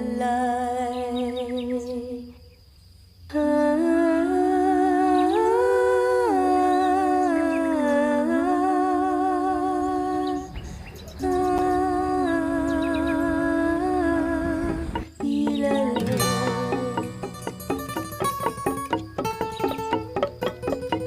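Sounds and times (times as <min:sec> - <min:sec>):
person humming slow melody: 0:03.3 - 0:10.6, 0:11.2 - 0:21.0.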